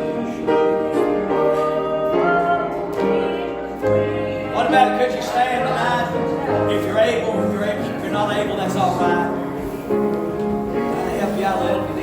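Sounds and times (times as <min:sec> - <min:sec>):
person singing: 0:00.0 - 0:09.6
sustained keyboard chords: 0:00.0 - 0:12.0.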